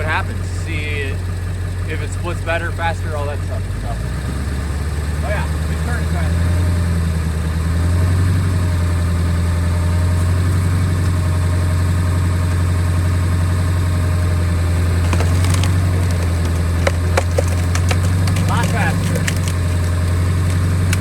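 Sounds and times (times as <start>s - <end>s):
truck engine low drone: 0.0s - 21.0s
sharp cracks: 14.4s - 21.0s.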